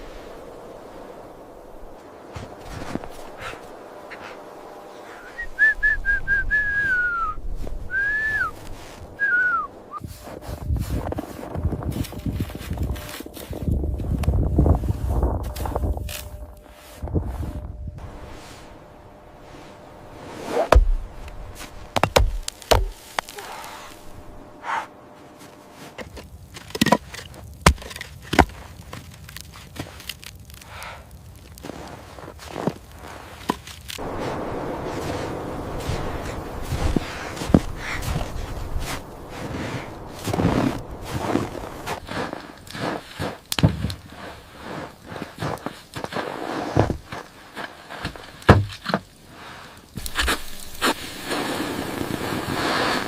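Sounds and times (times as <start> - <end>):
person whistling: 5.1 - 8.6, 9.2 - 10.0
low rumble: 9.8 - 26.0, 34.0 - 42.6
sharp knocks and thumps: 20.7 - 21.1, 21.9 - 23.3.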